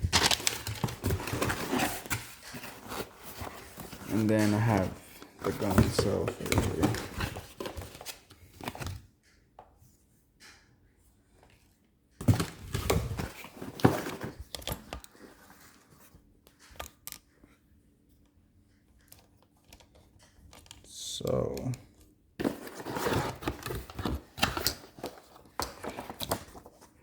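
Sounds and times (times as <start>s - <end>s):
packaging scraping and rustling: 0.0s - 9.0s, 12.2s - 15.9s, 22.4s - 27.0s.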